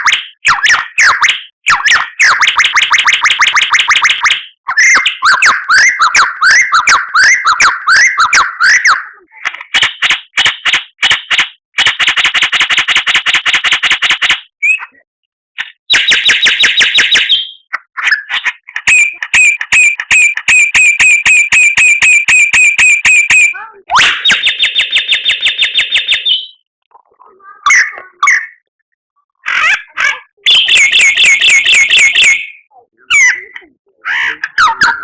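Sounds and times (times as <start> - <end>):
songbird singing varied phrases: 24.8 - 28.6.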